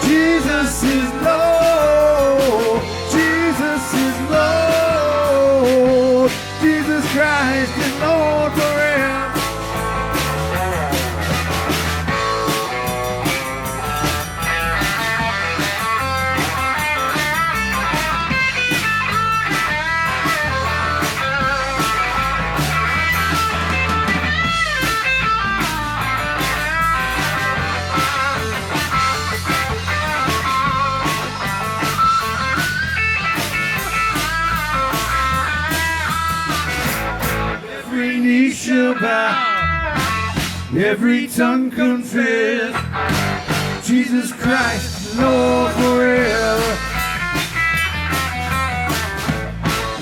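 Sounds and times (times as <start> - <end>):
steady drum beat: 0.0 - 37.6, 39.9 - 41.0, 42.9 - 50.0
bass guitar: 0.0 - 38.5, 39.1 - 41.5, 42.6 - 50.0
lead guitar solo: 9.6 - 37.8, 39.3 - 40.4.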